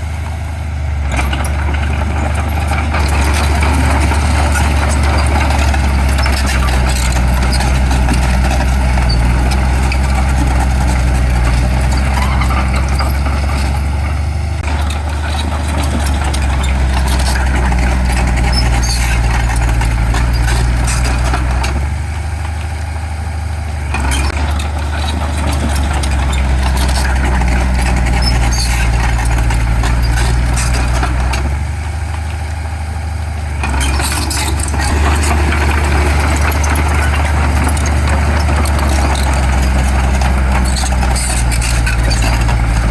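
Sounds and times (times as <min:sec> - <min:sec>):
heavy machine diesel engine: 0:00.0 - 0:42.9.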